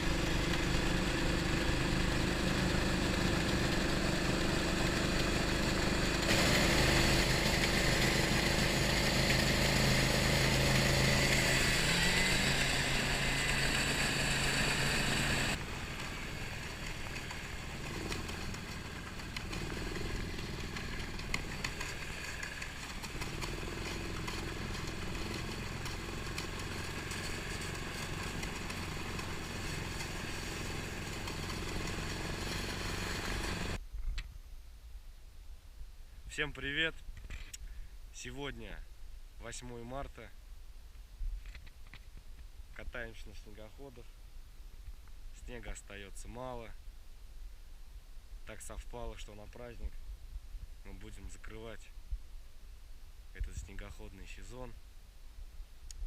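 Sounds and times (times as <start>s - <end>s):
snowmobile engine running: 0.0s - 33.8s.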